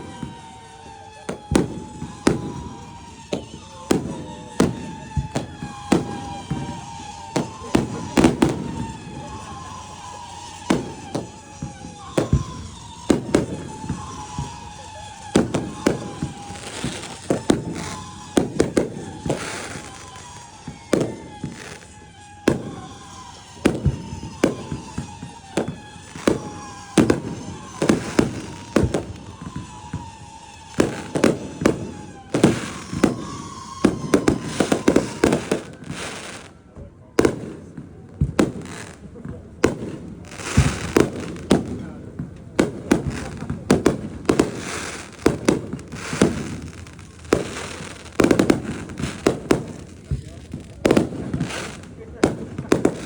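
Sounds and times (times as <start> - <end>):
fireworks bangs and pops: 0.0 - 53.0
high whistling tone sliding down: 0.1 - 36.5.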